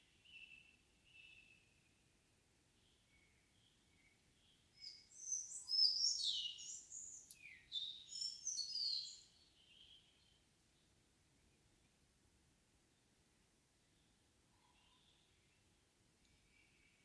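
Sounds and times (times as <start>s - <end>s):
songbird singing: 0.0s - 12.0s, 13.8s - 17.0s
faint distant bird calls: 2.8s - 12.0s, 13.8s - 17.0s.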